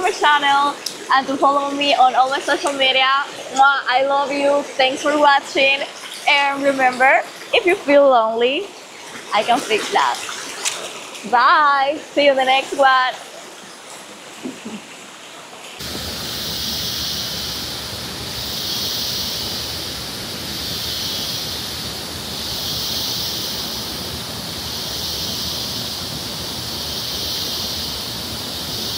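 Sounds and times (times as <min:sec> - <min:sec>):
rushing water: 0:00.0 - 0:28.9
high hiss: 0:15.8 - 0:28.9.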